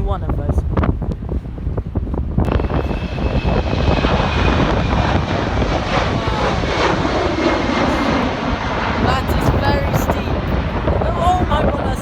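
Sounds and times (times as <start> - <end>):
wind buffeting microphone: 0.0 - 12.0
jet engines whining: 2.5 - 12.0.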